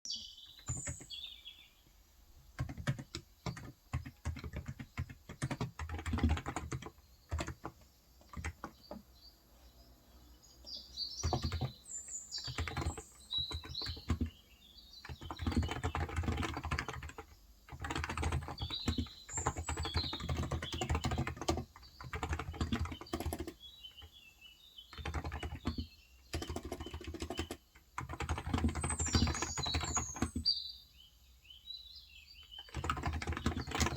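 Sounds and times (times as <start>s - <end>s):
birds chirping: 0.0s - 33.9s
typing on a keyboard: 0.6s - 1.2s, 2.5s - 9.0s, 11.2s - 14.4s, 15.0s - 24.2s, 24.9s - 30.5s, 32.5s - 33.9s.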